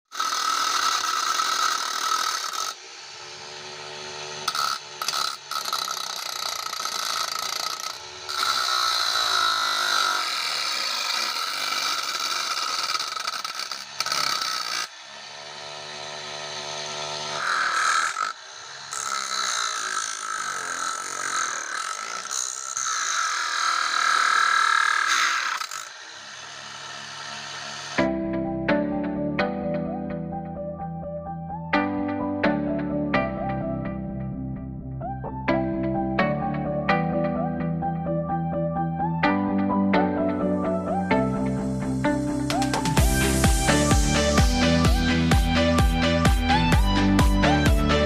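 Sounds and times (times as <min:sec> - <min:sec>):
angle grinder grinding: 0:00.0 - 0:28.1, 0:40.0 - 0:48.0
motor spinning free hum: 0:00.1 - 0:28.1, 0:41.1 - 0:48.0.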